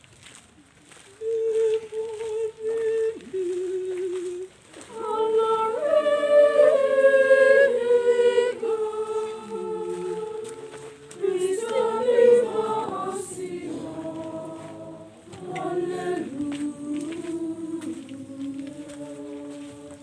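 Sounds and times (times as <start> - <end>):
choir singing: 4.9 - 20.0.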